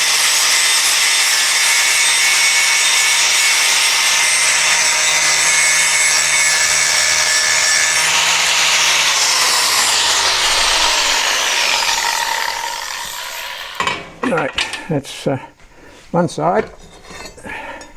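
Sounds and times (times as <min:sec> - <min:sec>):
electric grinder grinding steel: 0:00.0 - 0:14.2.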